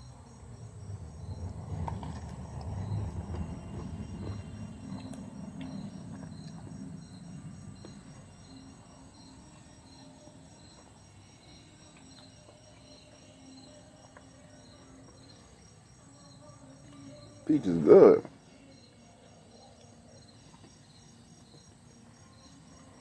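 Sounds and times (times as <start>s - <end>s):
crickets chirping: 0.0s - 23.0s
low rumble: 0.4s - 8.5s.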